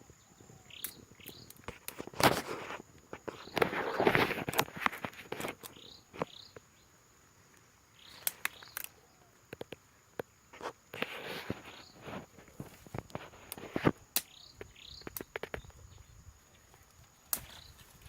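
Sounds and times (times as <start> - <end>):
insect drone: 0.0 - 18.0
bird chirps: 0.1 - 1.6, 5.7 - 6.9, 7.9 - 9.4, 14.2 - 16.8
vegetation rustling and crackling: 0.7 - 6.6, 7.4 - 18.0.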